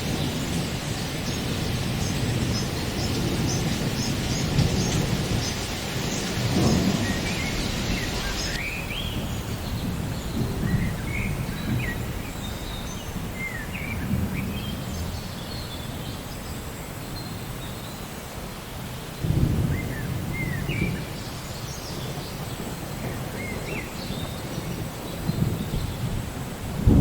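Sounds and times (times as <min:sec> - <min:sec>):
birds chirping: 0:00.0 - 0:14.8
low rolling thunder: 0:00.0 - 0:16.4, 0:19.2 - 0:27.0
steady rain: 0:00.0 - 0:27.0.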